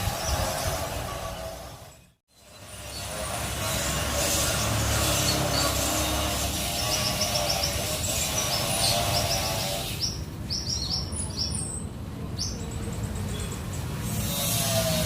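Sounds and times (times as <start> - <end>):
songbird high chirps: 6.9 - 13.9.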